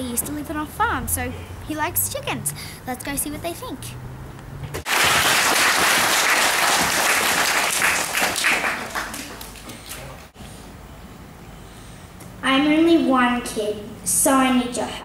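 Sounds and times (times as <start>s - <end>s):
children applauding: 4.8s - 10.3s.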